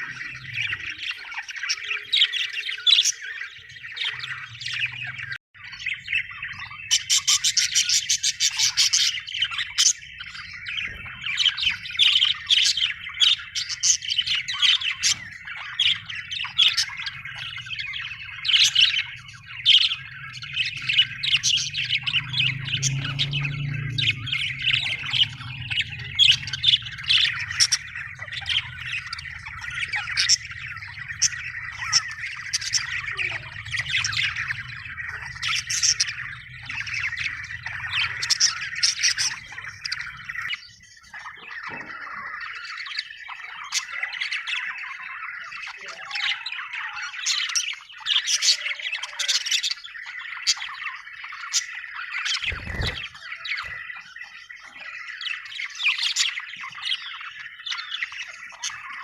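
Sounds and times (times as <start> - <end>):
budgerigars chirping and squawking: 0.0 - 59.0
low hum: 19.2 - 40.1.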